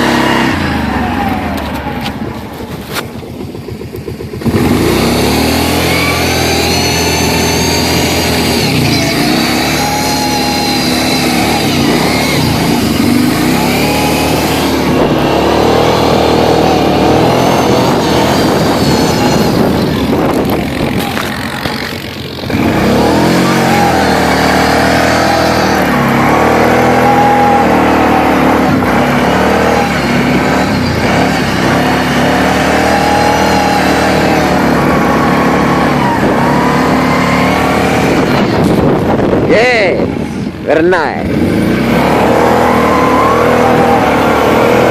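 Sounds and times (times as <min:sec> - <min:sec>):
quad engine revving: 0:00.0 - 0:44.9.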